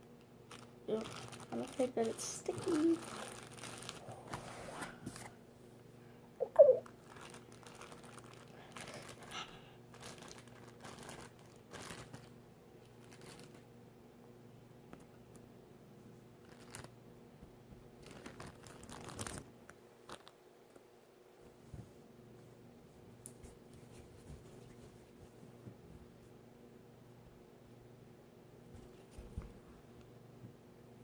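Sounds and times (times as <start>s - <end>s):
packaging crinkling: 0.5s - 5.3s, 6.9s - 12.4s, 13.0s - 13.6s, 16.4s - 16.9s, 18.0s - 19.5s.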